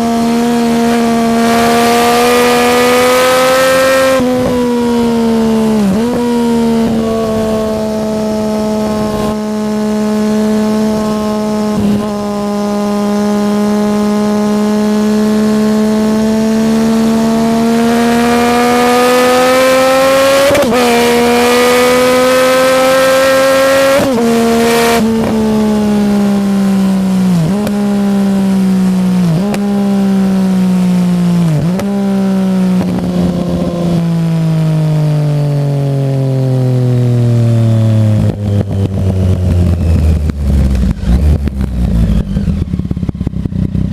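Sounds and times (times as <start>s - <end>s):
motorcycle engine revving: 0.0s - 43.9s
exhaust popping: 38.2s - 43.9s.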